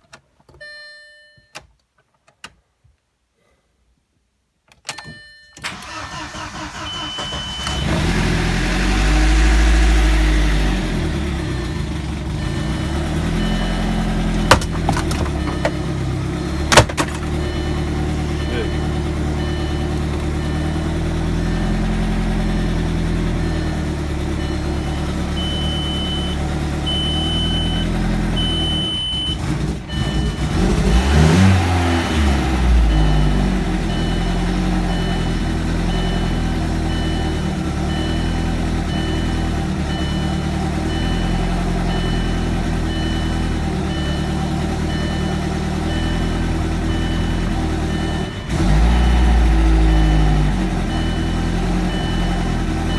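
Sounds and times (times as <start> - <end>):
car engine idling and revving: 5.7 - 52.9
high electronic beep: 17.4 - 30.4, 49.8 - 52.9.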